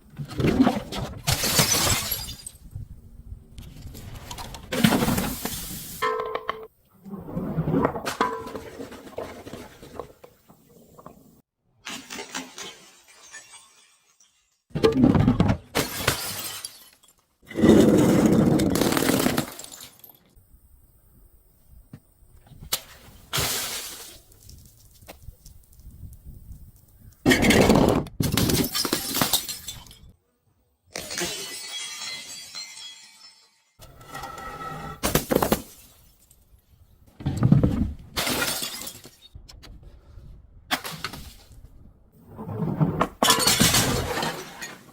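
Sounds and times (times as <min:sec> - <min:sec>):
glass bottles crushing: 0:01.2 - 0:02.6, 0:12.0 - 0:15.0, 0:15.8 - 0:17.3, 0:18.0 - 0:20.3, 0:28.3 - 0:30.1, 0:30.9 - 0:33.8, 0:38.2 - 0:39.3, 0:43.2 - 0:44.9
glass pieces crunching and tinkling: 0:12.2 - 0:14.6, 0:31.0 - 0:33.8
small glass clinks: 0:31.1 - 0:33.7.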